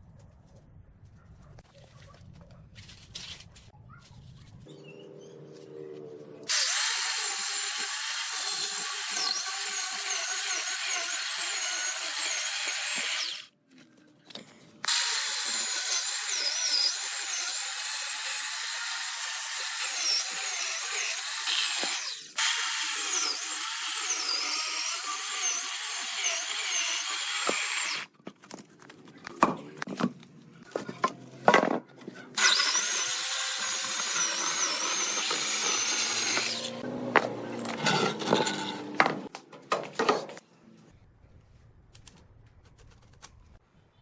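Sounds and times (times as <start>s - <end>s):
power tool whining: 6.4s - 13.5s, 14.9s - 28.1s, 32.4s - 39.3s.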